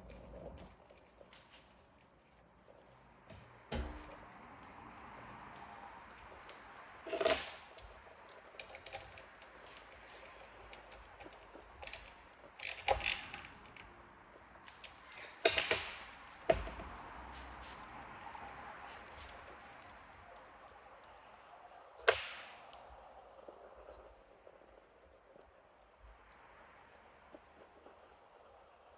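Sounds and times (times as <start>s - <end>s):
hand tools clicking and knocking: 6.1s - 13.9s, 14.6s - 17.1s.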